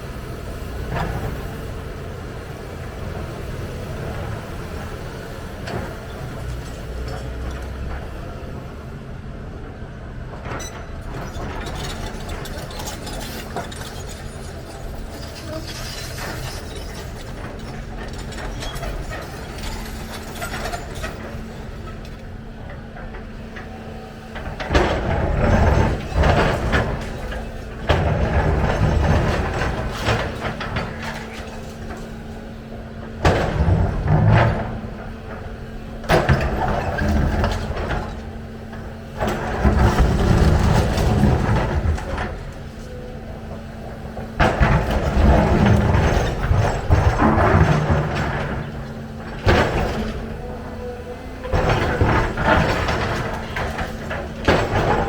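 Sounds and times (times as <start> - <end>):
excavator engine running: 0.0 - 55.0
metallic clanks and rattles: 10.4 - 23.7, 24.3 - 55.0
heavy knocking and grinding: 10.4 - 55.0.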